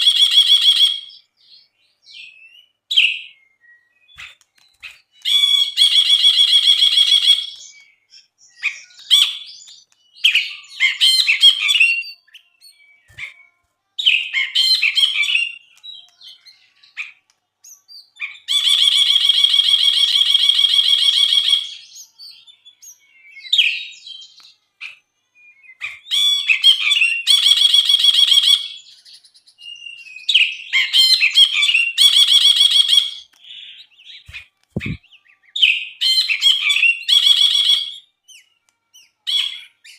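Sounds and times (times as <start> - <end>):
bird chattering: 34.3 - 35.0.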